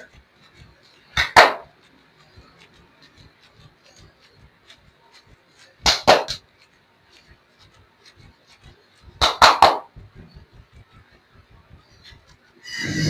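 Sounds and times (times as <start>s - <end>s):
hands slapping legs: 0.0s - 12.4s.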